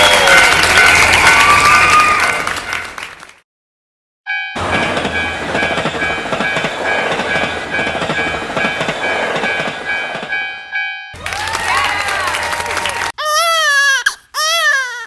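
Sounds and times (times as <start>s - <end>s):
level crossing warning bell: 4.3s - 11.2s
train wheels clattering over rails: 4.6s - 10.5s.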